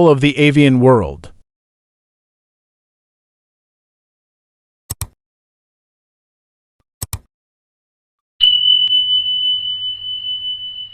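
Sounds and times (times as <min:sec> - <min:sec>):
high-pitched electronic tone: 0:08.4 - 0:10.9.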